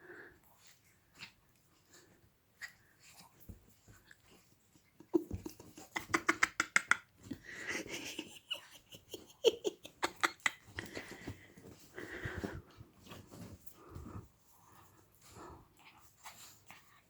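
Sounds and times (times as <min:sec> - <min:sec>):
dog making clicking noises: 0:05.3 - 0:07.1, 0:10.0 - 0:10.9
dog breathing: 0:10.7 - 0:12.9.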